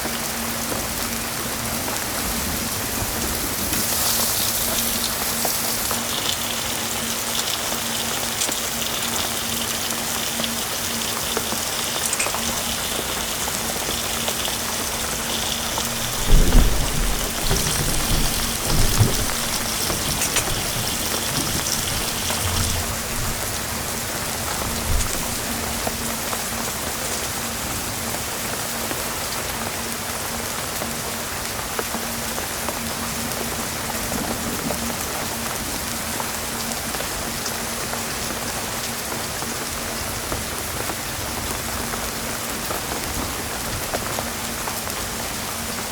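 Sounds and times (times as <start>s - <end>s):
heavy rain: 0.0s - 45.9s
low rumble: 15.5s - 25.6s.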